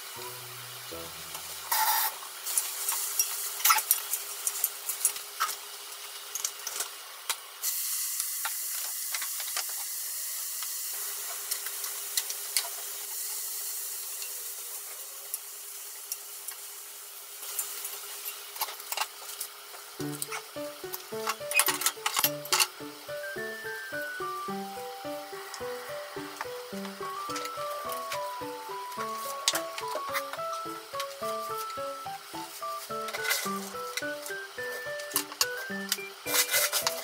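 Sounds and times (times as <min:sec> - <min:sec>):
vegetables sizzling in a frying pan: 0:00.0 - 0:37.0
utensils clicking on a pan: 0:01.3 - 0:05.6, 0:17.4 - 0:22.8, 0:33.0 - 0:37.0.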